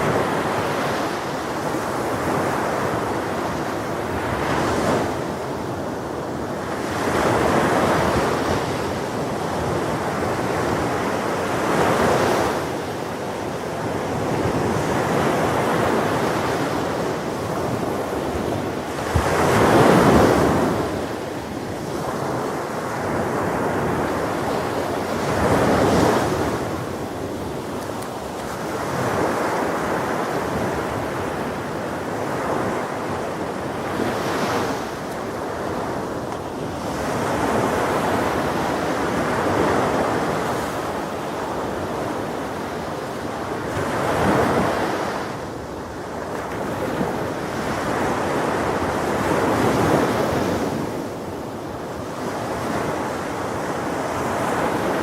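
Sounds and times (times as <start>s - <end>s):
wind: 0.0s - 55.0s.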